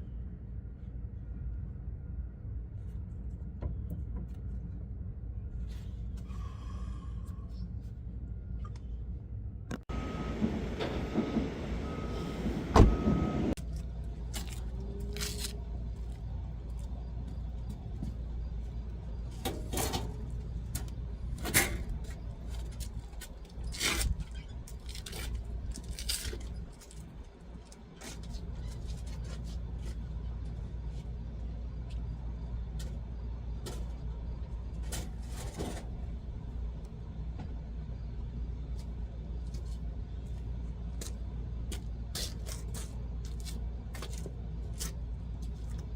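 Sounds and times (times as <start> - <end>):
low hum: 0.0 - 42.2
short beeps: 11.8 - 13.5.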